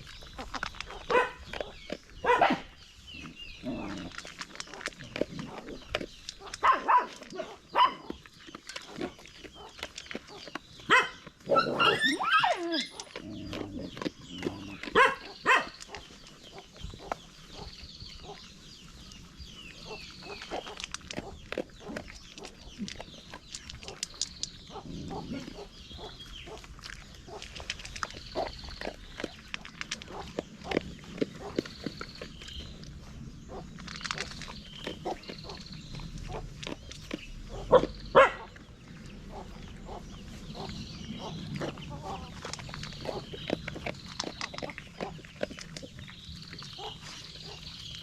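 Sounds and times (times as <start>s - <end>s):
dog whining and yelping: 11.5s - 13.2s.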